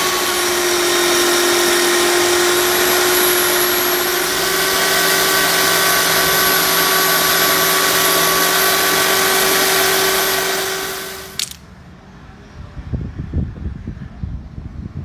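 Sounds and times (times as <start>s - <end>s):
power tool whining: 0.0s - 11.6s.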